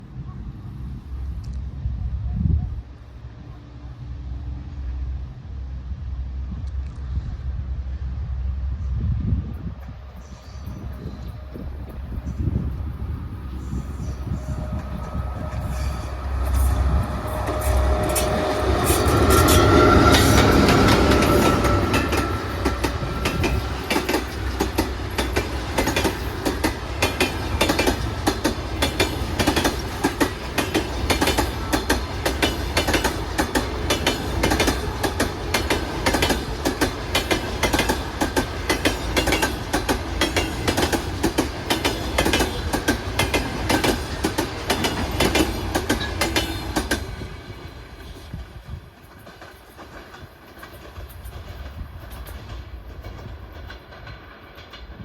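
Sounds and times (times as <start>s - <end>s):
electric locomotive humming: 0.0s - 55.0s
wheels clacking over rail joints: 13.6s - 55.0s.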